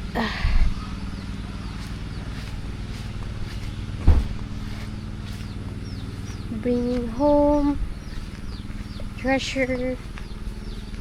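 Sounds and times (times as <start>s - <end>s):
engine idling: 0.0s - 11.0s
loud thumps: 4.0s - 4.6s.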